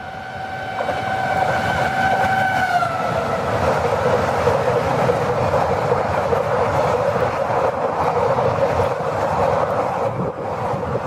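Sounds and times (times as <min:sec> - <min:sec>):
locomotive horn: 0:00.0 - 0:03.4
train coaches rushing and rattling: 0:00.0 - 0:11.0.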